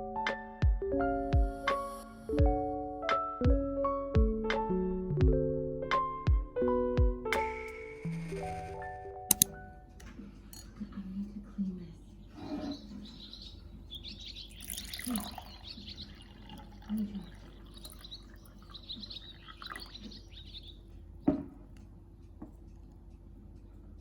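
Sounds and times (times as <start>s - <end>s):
birds chirping: 11.6s - 22.7s.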